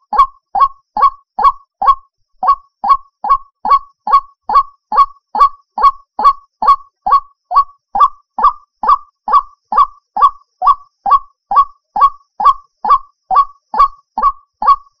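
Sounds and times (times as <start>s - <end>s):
bird calling hoarse notes: 0.0s - 15.0s.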